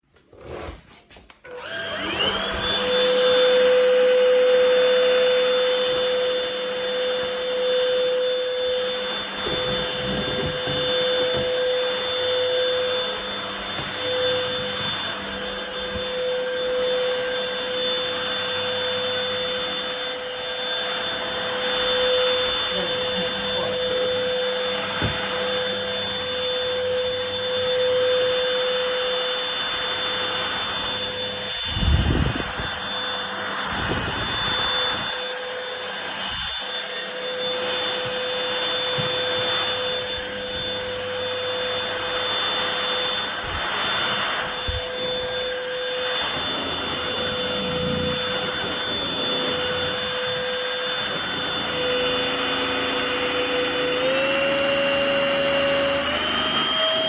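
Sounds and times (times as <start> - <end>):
stick vacuum cleaner whine: 0.0 - 57.0
bumps and scraping: 9.4 - 11.6.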